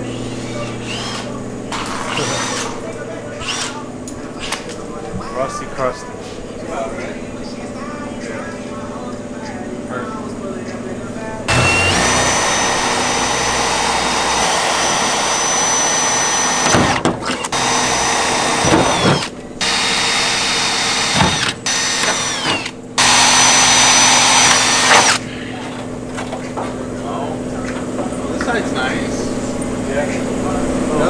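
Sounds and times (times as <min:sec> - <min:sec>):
power tool motor whining: 0:00.0 - 0:03.8, 0:11.5 - 0:26.4.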